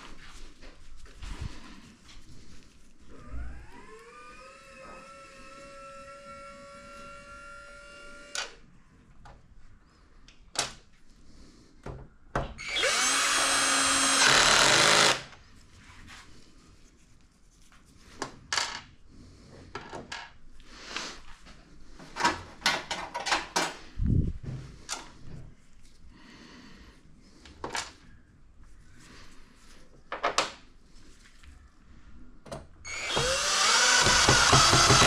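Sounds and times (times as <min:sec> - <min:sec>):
cordless drill whining: 0:03.2 - 0:08.6, 0:12.6 - 0:15.3, 0:32.9 - 0:35.0.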